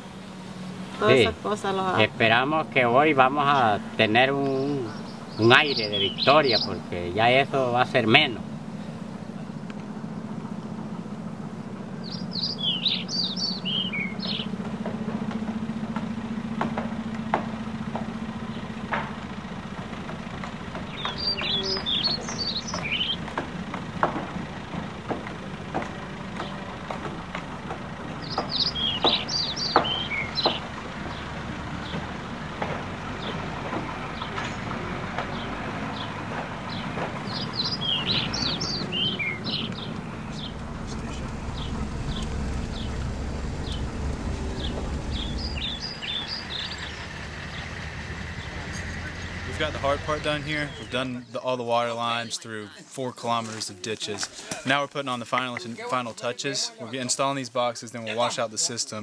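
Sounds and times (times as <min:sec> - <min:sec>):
songbird singing high notes: 0:04.5 - 0:07.0, 0:12.0 - 0:14.6, 0:20.9 - 0:23.2, 0:28.2 - 0:31.3, 0:36.7 - 0:51.4
low steady hum: 0:36.5 - 0:51.2.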